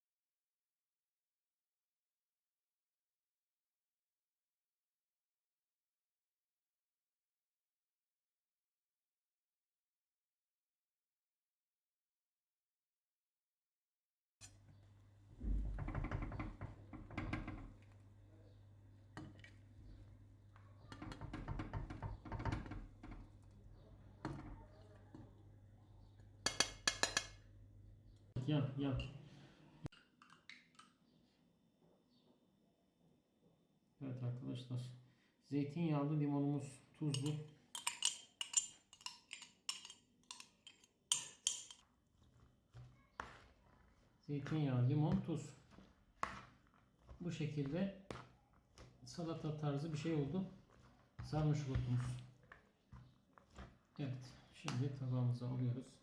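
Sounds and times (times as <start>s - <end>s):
dishes and utensils clinking: 26.4s - 27.4s, 37.1s - 41.8s.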